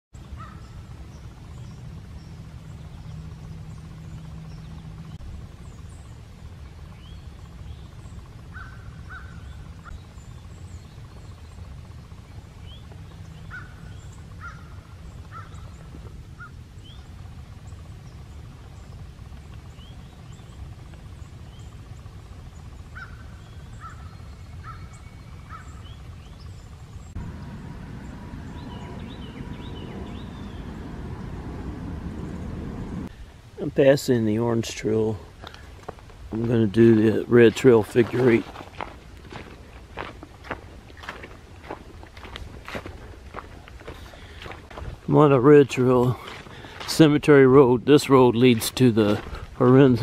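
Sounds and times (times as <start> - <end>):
birds calling: 0.2 - 33.3, 34.3 - 50.0
steady low rumble: 0.2 - 50.0
high bird chirps: 23.0 - 32.6.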